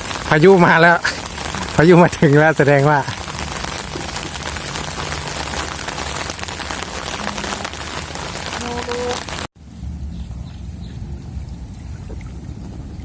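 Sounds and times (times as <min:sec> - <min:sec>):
heavy rain falling: 0:00.0 - 0:09.5.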